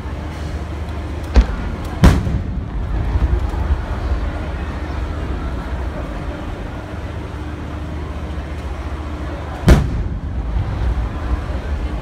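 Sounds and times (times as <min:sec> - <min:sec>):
firework boom: 0:01.3 - 0:03.8, 0:09.7 - 0:11.0
low rumble: 0:01.3 - 0:07.4, 0:09.7 - 0:12.0.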